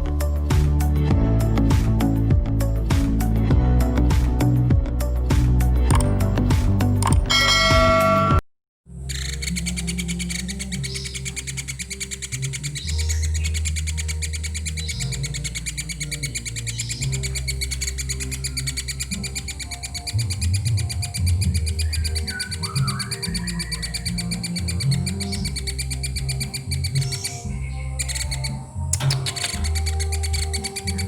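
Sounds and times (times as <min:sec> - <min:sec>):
low droning music: 0:05.8 - 0:31.0
woodpecker chick chattering: 0:05.9 - 0:06.4, 0:07.0 - 0:08.2, 0:09.1 - 0:31.0.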